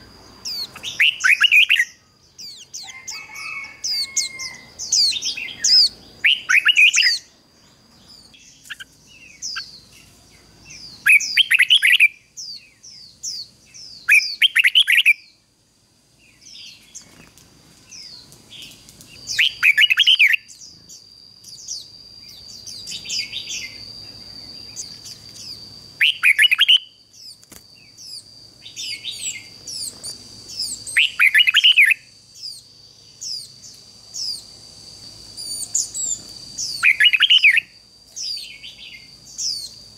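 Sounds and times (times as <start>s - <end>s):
thin high bird chirps: 0.0s - 15.4s, 16.2s - 34.6s, 35.2s - 39.9s
bird singing jumbled phrases: 0.0s - 39.9s
steady thin high tone: 20.4s - 32.1s.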